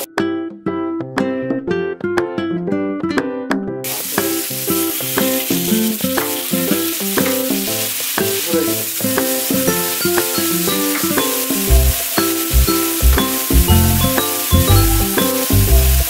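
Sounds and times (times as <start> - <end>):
plucked-string background music: 0.0 - 16.0
vegetables sizzling in a wok: 3.9 - 16.0.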